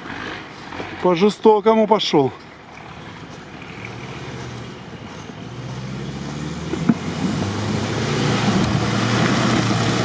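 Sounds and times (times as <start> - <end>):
engine running steadily: 2.3 - 10.0.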